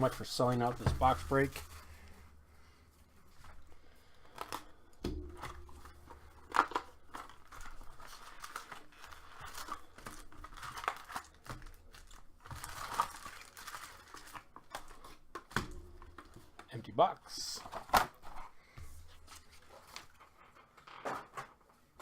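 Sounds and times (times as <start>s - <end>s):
cardboard being handled: 0.0s - 2.2s
plastic wrapping crinkling and tearing: 0.0s - 2.2s, 5.4s - 16.4s.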